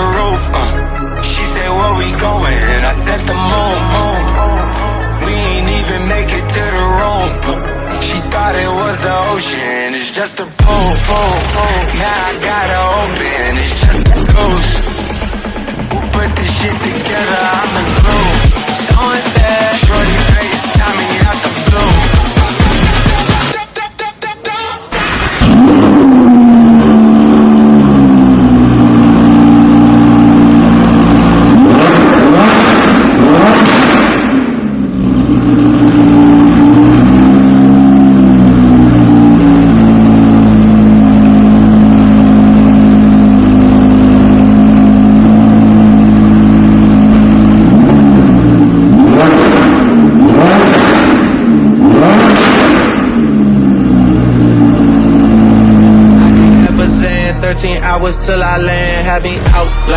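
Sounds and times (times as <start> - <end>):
sports car engine idling and revving: 10.6 - 23.5, 24.9 - 59.9.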